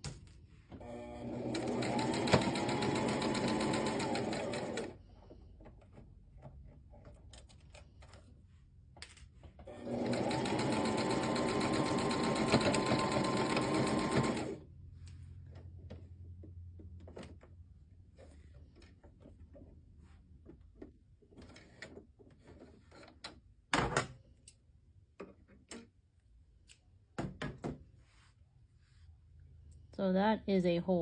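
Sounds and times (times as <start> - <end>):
sewing machine stitching: 0.8 - 5.0, 9.7 - 14.6.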